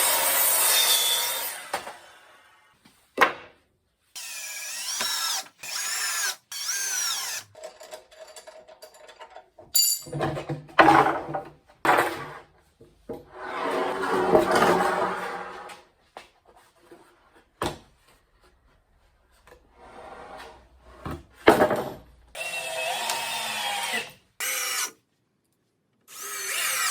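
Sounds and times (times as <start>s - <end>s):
power drill into wood: 4.2s - 7.5s, 22.4s - 25.0s, 26.1s - 26.9s.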